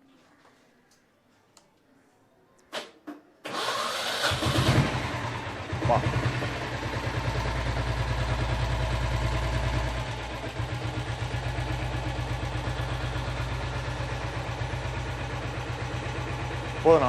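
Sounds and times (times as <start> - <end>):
diesel motorcycle engine idling: 4.5 - 17.0.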